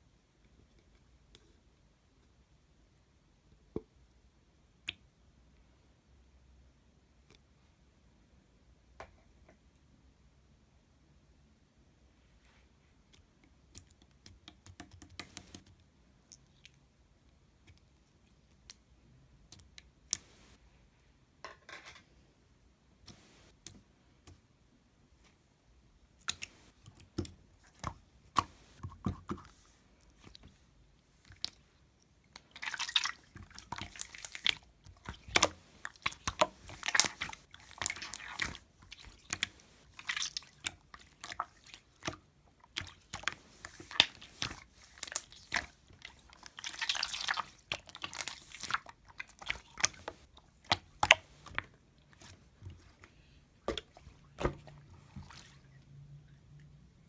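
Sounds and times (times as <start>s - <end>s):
slime squished by hand: 32.3s - 52.4s.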